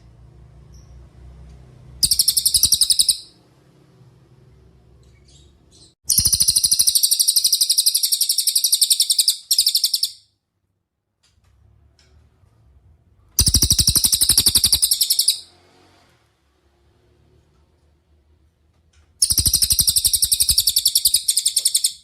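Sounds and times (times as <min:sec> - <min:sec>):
songbird singing fast trills: 0:02.0 - 0:03.3, 0:06.1 - 0:10.2, 0:13.4 - 0:15.4, 0:19.2 - 0:22.0.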